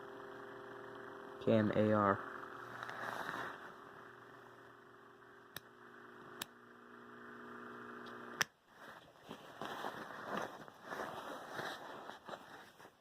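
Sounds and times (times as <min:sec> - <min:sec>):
box fan motor humming: 0:00.0 - 0:08.5.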